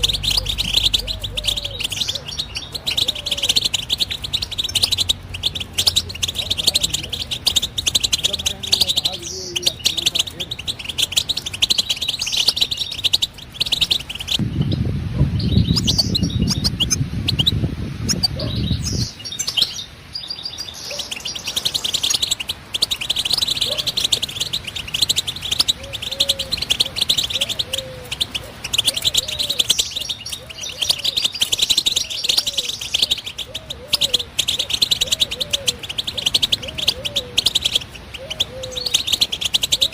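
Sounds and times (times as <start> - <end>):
low rumbling noise: 0.0 - 30.4
goldfinch twittering song: 0.0 - 39.9.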